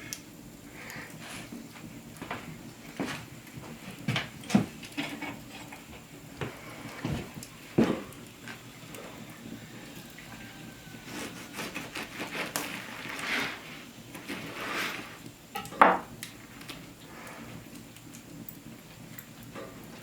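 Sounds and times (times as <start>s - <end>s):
utensils scraping: 10.9s - 15.3s.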